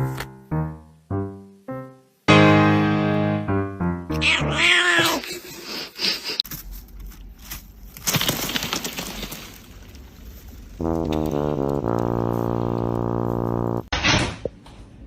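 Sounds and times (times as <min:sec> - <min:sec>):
music with plucked notes: 0:00.0 - 0:04.2
cat meowing: 0:04.1 - 0:05.2.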